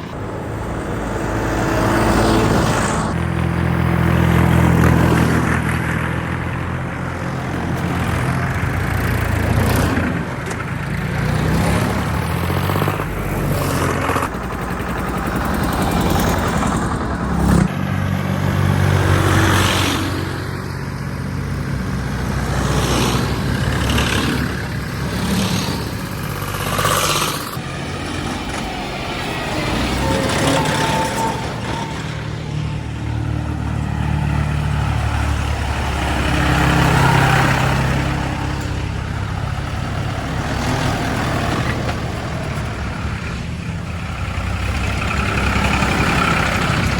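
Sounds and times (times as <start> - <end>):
diesel tractor engine running: 0.0 - 46.9.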